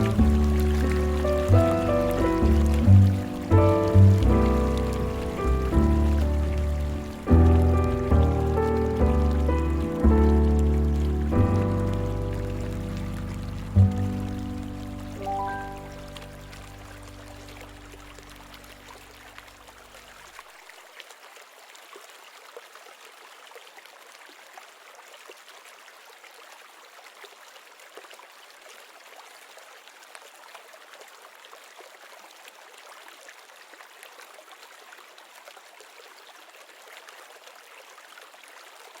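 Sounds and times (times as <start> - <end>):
music with low sustained notes: 0.0 - 18.6
trickling splashing water: 0.0 - 39.0.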